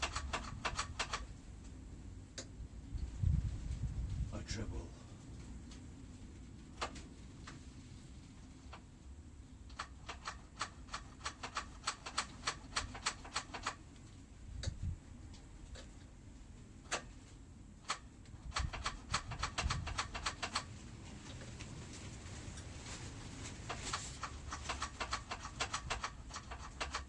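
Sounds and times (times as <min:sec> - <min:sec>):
rapid sharp clicking: 0:00.0 - 0:01.3, 0:09.7 - 0:14.8, 0:17.8 - 0:20.7, 0:23.7 - 0:27.0.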